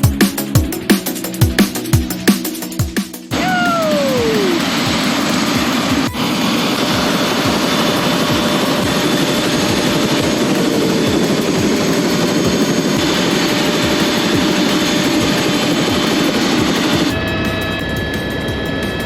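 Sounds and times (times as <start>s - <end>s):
helicopter rotor and engine: 3.2s - 19.0s.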